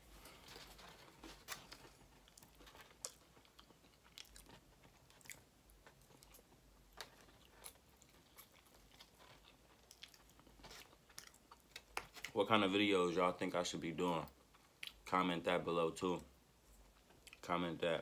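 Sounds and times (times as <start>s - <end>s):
chewing noodles: 1.6s - 12.4s.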